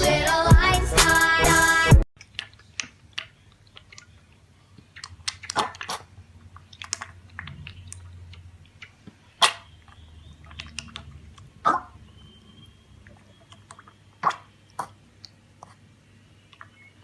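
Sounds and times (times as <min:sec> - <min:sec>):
animal chewing: 0:02.2 - 0:11.9.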